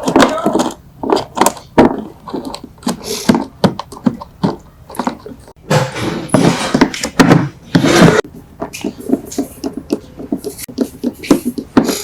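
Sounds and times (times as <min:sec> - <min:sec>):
rough scraping rub: 0:05.7 - 0:07.0.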